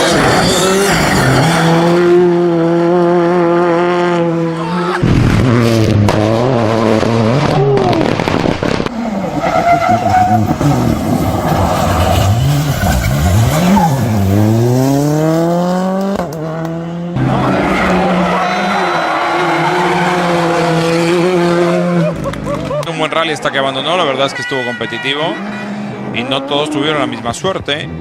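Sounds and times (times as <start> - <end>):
rally car engines revving: 0.0 - 28.0.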